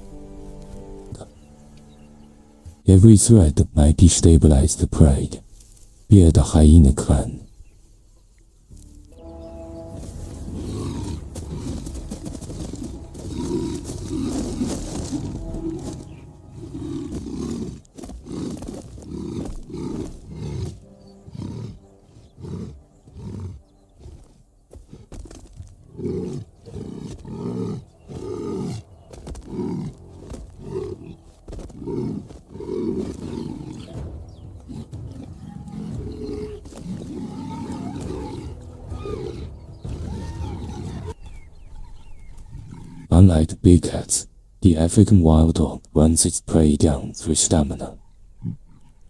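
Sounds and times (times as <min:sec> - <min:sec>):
lion roaring and grunting: 0:09.9 - 0:43.2.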